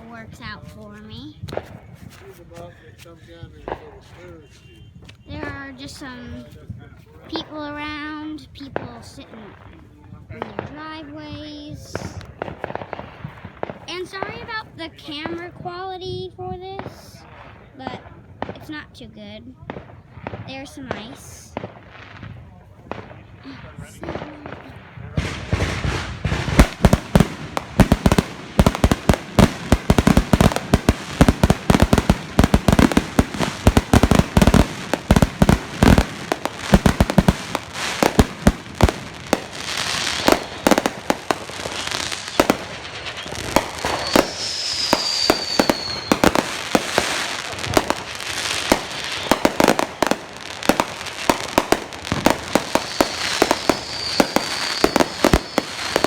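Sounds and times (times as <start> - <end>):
fireworks bangs and crackles: 0.0 - 56.0
falling firework whistle: 42.2 - 47.0, 52.1 - 56.0.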